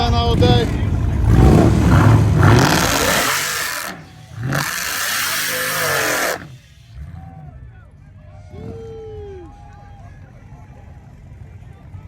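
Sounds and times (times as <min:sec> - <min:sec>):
car engines revving and passing: 0:00.0 - 0:09.2.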